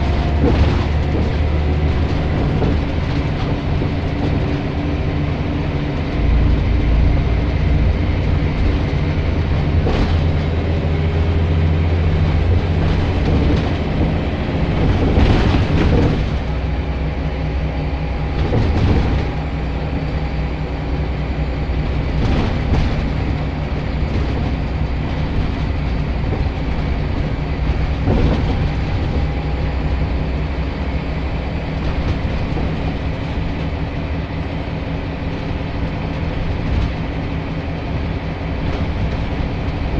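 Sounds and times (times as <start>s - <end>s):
short knocks or rattles: 0.0s - 17.2s, 21.7s - 30.2s
bus diesel engine running: 0.0s - 39.9s.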